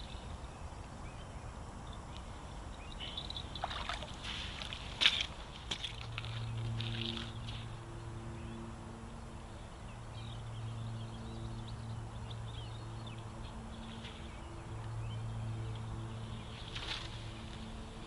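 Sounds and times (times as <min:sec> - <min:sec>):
birds chirping: 0:00.0 - 0:18.0
distant engine droning: 0:00.0 - 0:18.0.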